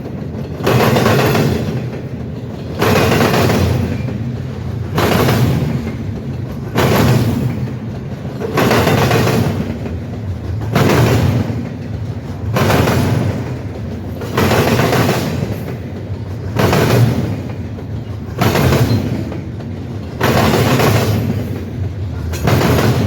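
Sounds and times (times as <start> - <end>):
train wheels clattering over crossing: 0.0 - 23.0.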